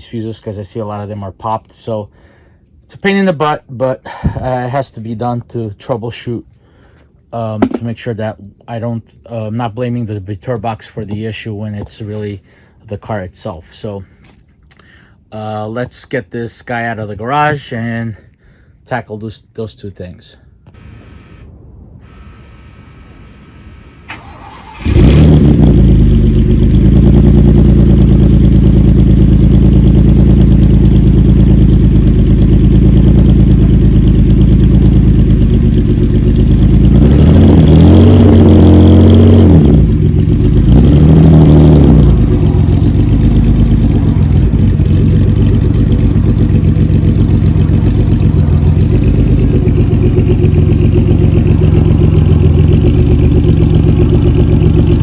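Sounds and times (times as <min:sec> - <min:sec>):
car engine starting and idling: 0:20.7 - 0:55.0
engine revving: 0:24.1 - 0:55.0.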